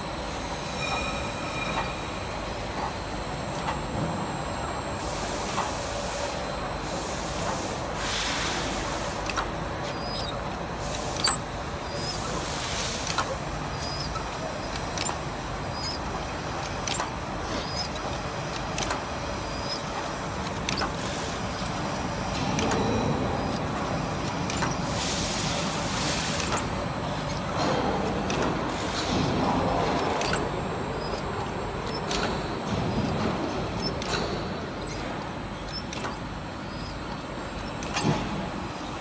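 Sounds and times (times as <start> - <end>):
high machine whine: 0.0 - 39.0
air hissing: 5.0 - 9.5, 24.5 - 27.4
machine clacking: 8.6 - 39.0.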